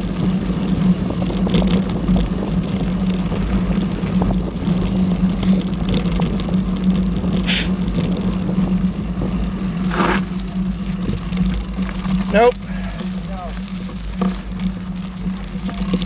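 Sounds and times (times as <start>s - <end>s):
bike tyres rumbling on trail: 0.0s - 16.0s
wind on microphone: 0.0s - 16.0s.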